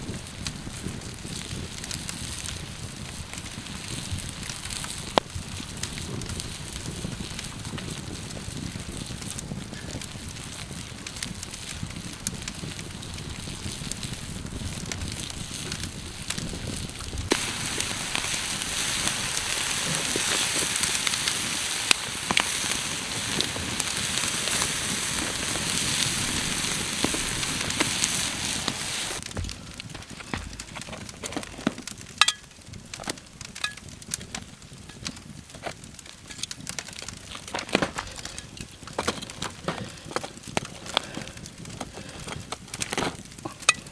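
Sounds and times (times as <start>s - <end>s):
sizzling hiss: 0.0s - 29.9s
campfire crackling and popping: 0.0s - 43.9s.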